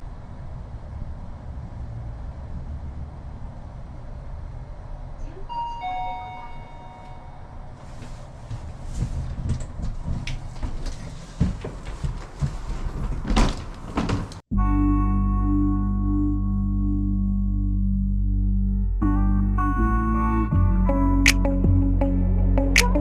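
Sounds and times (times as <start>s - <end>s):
train rumbling: 0.0s - 14.5s
knocks and clatters: 8.4s - 14.5s.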